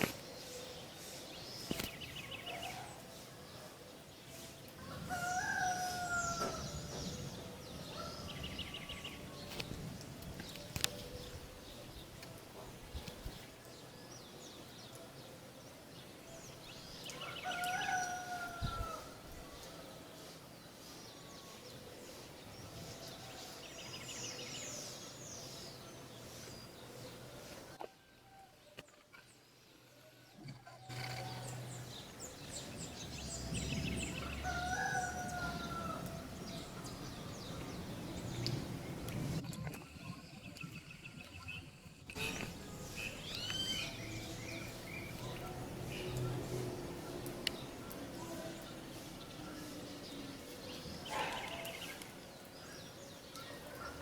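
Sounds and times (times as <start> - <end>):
small birds chirping: 0.0 - 27.8, 30.9 - 54.0
rooster crowing: 4.8 - 6.9, 17.2 - 19.2, 33.9 - 36.8.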